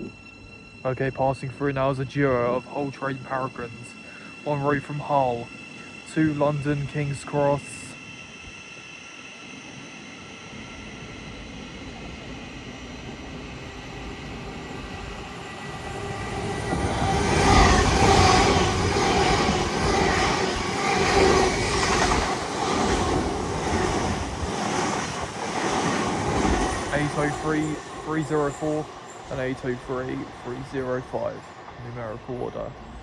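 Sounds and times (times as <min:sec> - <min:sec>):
train passing at speed: 0:00.0 - 0:33.0
wheels clattering on rails: 0:15.3 - 0:32.7.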